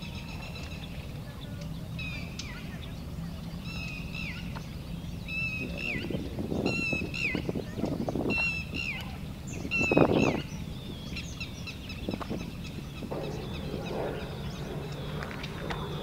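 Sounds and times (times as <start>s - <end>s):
birds chirping and calling: 8.4s - 16.0s
steady low hum: 10.5s - 16.0s.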